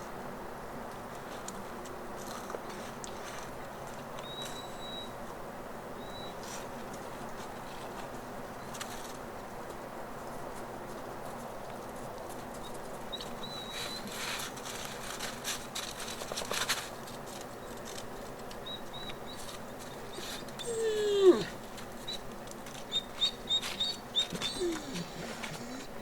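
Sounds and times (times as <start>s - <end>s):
small birds chirping: 4.2s - 5.2s, 6.0s - 6.5s, 12.6s - 14.3s, 17.5s - 26.0s
rustling: 6.4s - 26.0s.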